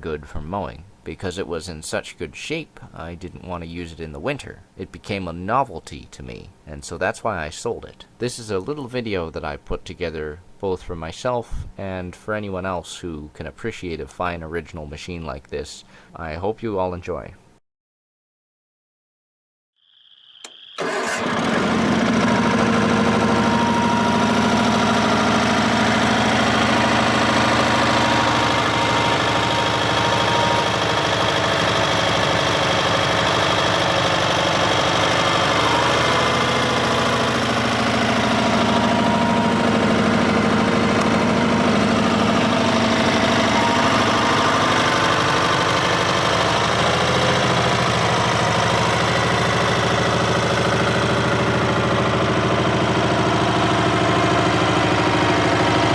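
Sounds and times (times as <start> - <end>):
tractor engine running: 20.8 - 55.9.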